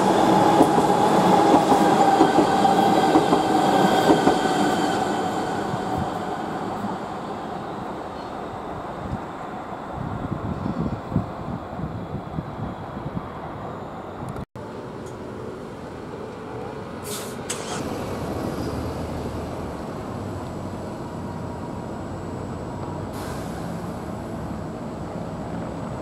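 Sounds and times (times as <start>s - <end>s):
vehicle rumble in motion: 14.2s - 26.0s
short hisses: 17.0s - 17.8s, 23.2s - 23.9s.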